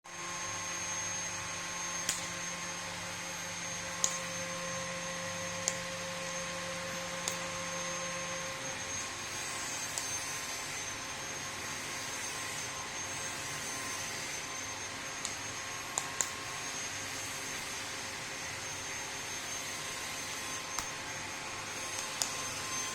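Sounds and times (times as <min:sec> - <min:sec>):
mechanical whir with hum: 0:00.1 - 0:22.9
sharp high clicks: 0:02.0 - 0:02.4, 0:04.0 - 0:04.5, 0:05.6 - 0:06.0, 0:07.2 - 0:07.6, 0:09.8 - 0:10.4, 0:15.2 - 0:16.4, 0:20.8 - 0:21.0.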